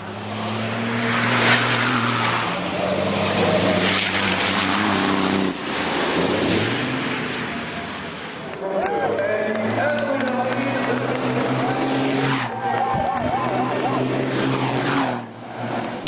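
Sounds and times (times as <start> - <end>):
diesel truck engines racing: 0.0 - 16.0.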